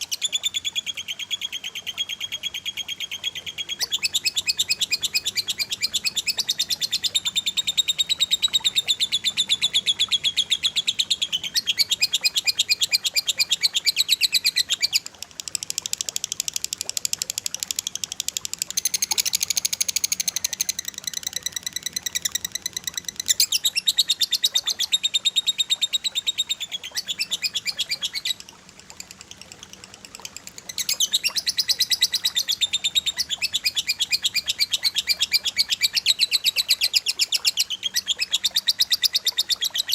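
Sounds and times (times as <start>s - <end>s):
rapid high-pitched bird chirps: 18.7s - 28.4s, 29.3s - 39.9s.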